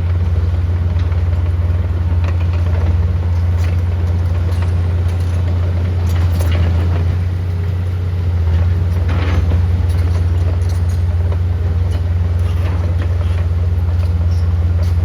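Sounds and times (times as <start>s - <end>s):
light metallic clanks: 8.6s - 15.0s.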